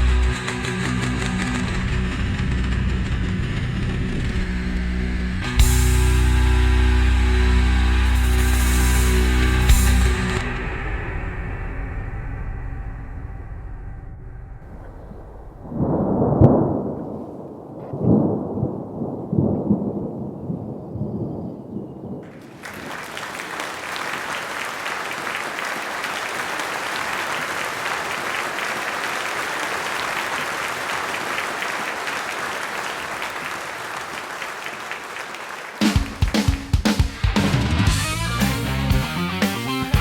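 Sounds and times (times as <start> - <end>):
electric guitar music: 0.0 - 11.6, 37.0 - 40.0
thunder rumbling: 10.6 - 22.9.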